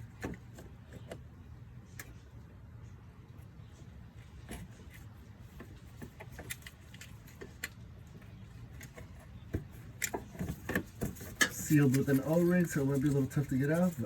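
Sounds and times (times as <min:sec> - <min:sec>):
screwdriver clicking and scraping metal: 0:09.8 - 0:14.0.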